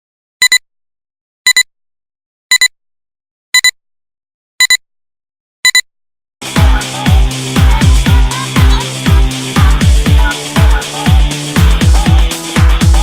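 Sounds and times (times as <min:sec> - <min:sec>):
electronic dance music: 0:06.4 - 0:13.0.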